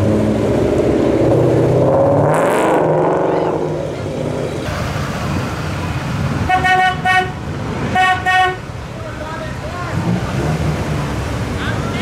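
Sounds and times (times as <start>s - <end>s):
car engine accelerating: 0.0s - 6.6s, 9.5s - 12.0s.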